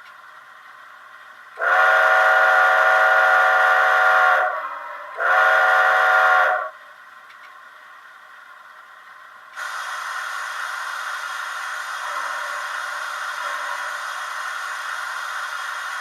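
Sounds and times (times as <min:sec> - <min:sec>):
steam whistle through small speaker: 0:01.6 - 0:06.8.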